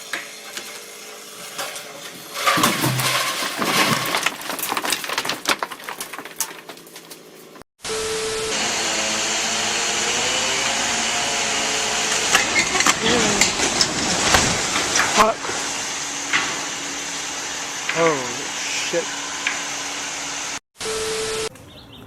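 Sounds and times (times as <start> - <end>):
chainsaw running: 7.9 - 13.2.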